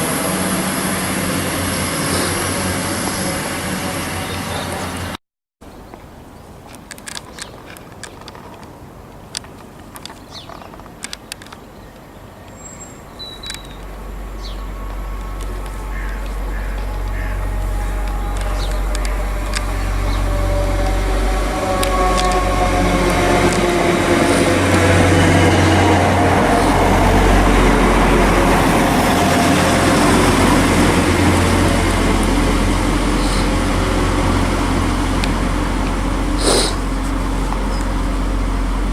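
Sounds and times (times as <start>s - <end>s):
wheels rushing on rails: 0.0s - 5.2s, 5.8s - 38.9s
bird chirps: 11.6s - 22.1s
low background hum: 12.6s - 38.9s
steady tones: 12.8s - 38.9s
low rumble: 12.9s - 38.9s
sharp clicks: 13.2s - 23.6s.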